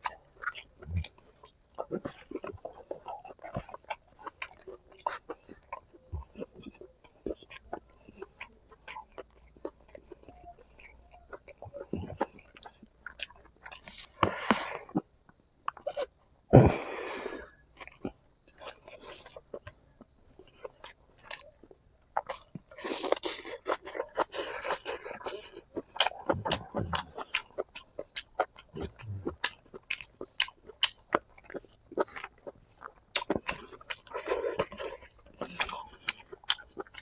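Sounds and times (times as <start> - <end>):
chewing and lip-smacking: 0.0 - 15.0, 17.8 - 37.0.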